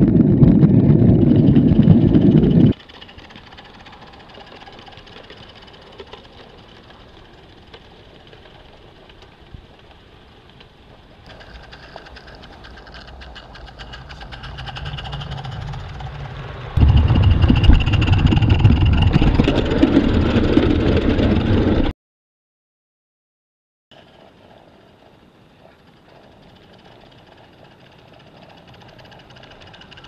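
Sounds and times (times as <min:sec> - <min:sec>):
loud rumble: 0:00.0 - 0:02.8, 0:13.5 - 0:21.9
small steam train clicking: 0:02.7 - 0:21.6, 0:24.0 - 0:30.0.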